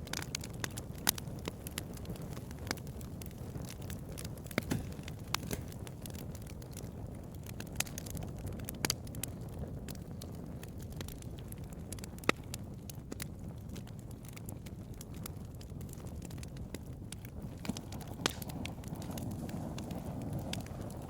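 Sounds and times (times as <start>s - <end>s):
bonfire crackling and popping: 0.0s - 21.0s
low rumble of flame: 0.0s - 21.0s.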